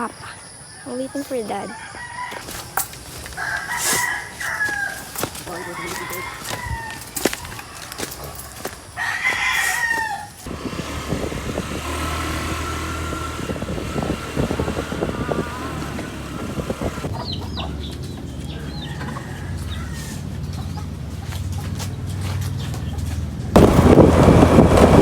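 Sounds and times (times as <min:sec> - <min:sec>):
small birds chirping: 0:00.0 - 0:10.1, 0:13.2 - 0:23.3
rooster crowing: 0:00.6 - 0:10.5, 0:18.5 - 0:20.5
low engine hum: 0:10.5 - 0:25.0.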